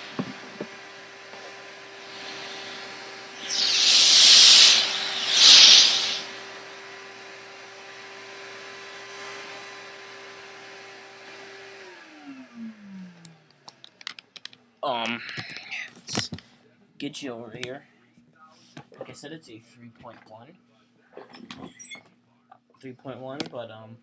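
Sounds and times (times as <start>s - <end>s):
vacuum cleaner motor whine: 1.3s - 6.3s, 7.8s - 13.3s
air rushing from vacuum hose: 2.0s - 6.4s
vacuum motor winding down: 3.4s - 6.3s.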